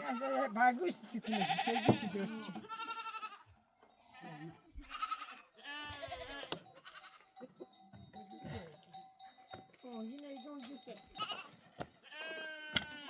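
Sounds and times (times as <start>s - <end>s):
goats bleating: 0.0s - 7.4s, 11.2s - 13.0s.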